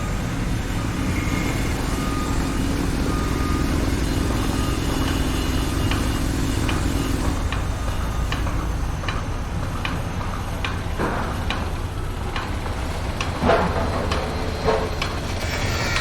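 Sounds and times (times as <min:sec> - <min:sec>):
loud metal clanks: 0:10.9 - 0:16.0.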